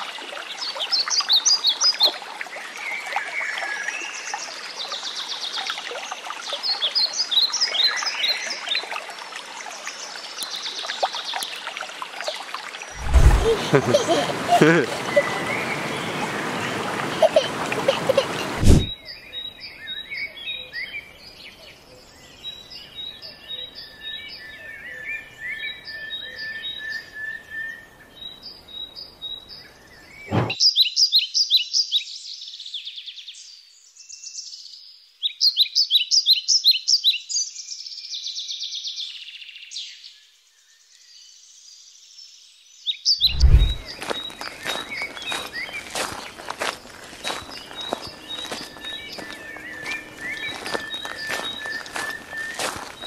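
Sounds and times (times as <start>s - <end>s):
footsteps on a dirt path: 13.0s - 15.4s, 17.4s - 18.9s, 43.2s - 53.0s
birds singing: 13.0s - 34.7s, 35.3s - 53.0s
songbird trills: 42.9s - 53.0s.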